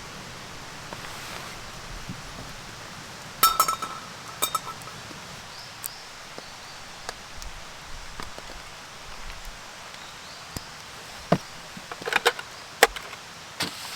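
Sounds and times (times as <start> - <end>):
background hiss: 0.0 - 13.9
sharp ringing clink: 3.4 - 5.0.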